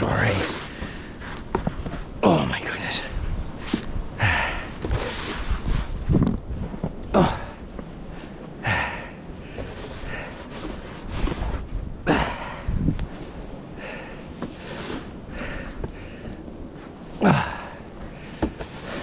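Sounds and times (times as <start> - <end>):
snow shovel scraping: 0.1 - 2.0, 4.9 - 5.6, 18.6 - 19.0
man breathing hard: 4.1 - 6.0, 7.1 - 13.0, 13.7 - 16.6.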